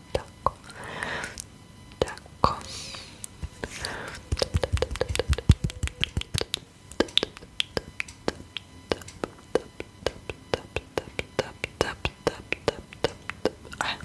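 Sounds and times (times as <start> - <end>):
fingertips tapping on skin: 3.4 - 14.0
soft low thumps: 4.3 - 6.6.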